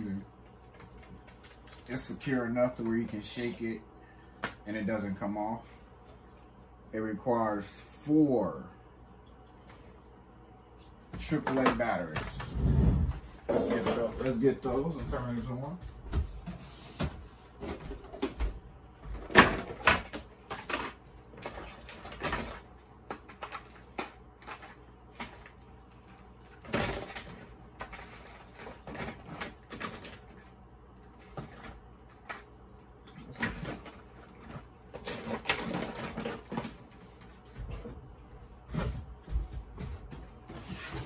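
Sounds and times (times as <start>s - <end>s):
plastic parts clicking and knocking: 19.1s - 25.5s.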